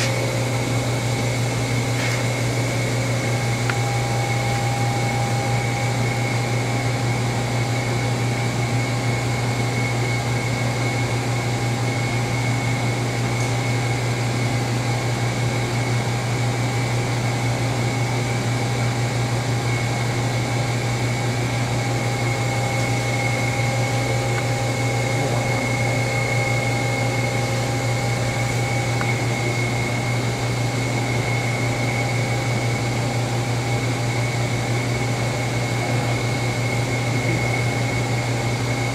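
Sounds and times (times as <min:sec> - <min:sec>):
machine hum: 0:00.0 - 0:38.9.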